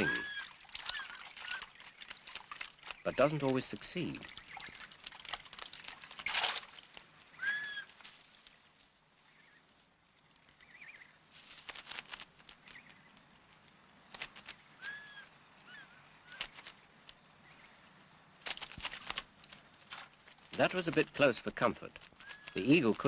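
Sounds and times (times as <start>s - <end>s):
bird calls: 0.0s - 5.3s, 7.3s - 8.0s, 10.5s - 11.2s, 12.6s - 13.2s, 14.4s - 16.7s, 22.2s - 22.8s
splashing and flapping in water: 0.0s - 8.7s, 11.4s - 13.0s, 18.4s - 21.3s.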